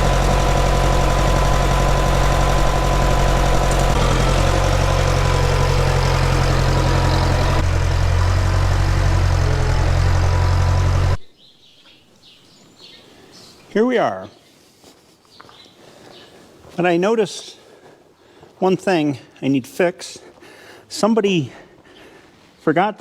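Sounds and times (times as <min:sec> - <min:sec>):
tractor engine running: 0:00.0 - 0:11.3
faint birdsong: 0:05.5 - 0:07.6, 0:11.2 - 0:19.5, 0:21.2 - 0:22.9.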